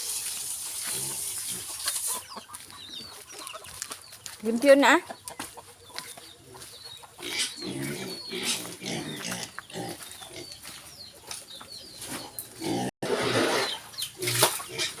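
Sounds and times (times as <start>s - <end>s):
pigs calling: 5.5s - 10.7s, 12.5s - 15.0s.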